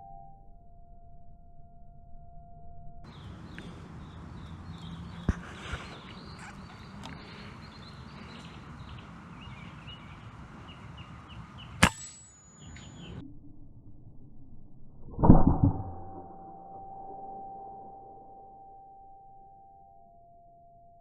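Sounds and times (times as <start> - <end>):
birds chirping: 3.1 - 13.2
air rifle crack: 11.7 - 12.4.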